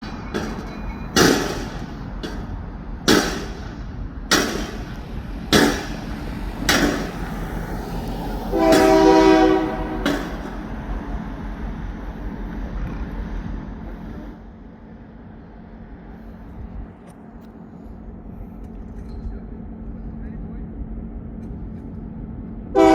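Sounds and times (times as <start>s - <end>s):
sharp metallic bangs: 0.0s - 7.7s, 8.5s - 10.7s
freight train clanking: 0.0s - 17.4s, 18.1s - 22.9s
diesel locomotive horn blast: 6.8s - 10.8s.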